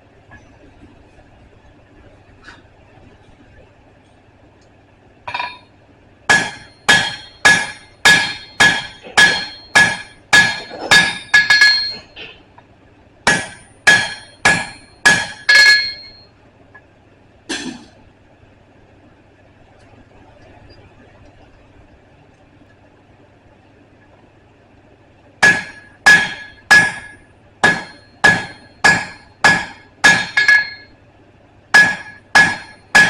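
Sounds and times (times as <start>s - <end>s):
hammer striking steel on anvil: 5.3s - 5.7s, 6.3s - 12.2s, 13.3s - 16.2s, 17.5s - 17.9s, 25.4s - 30.9s, 31.7s - 33.0s.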